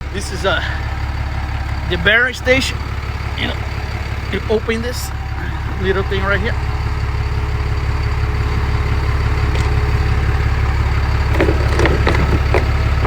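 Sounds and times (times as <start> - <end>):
truck engine idling: 0.0 - 13.0
light clicks and knocks: 11.3 - 13.0.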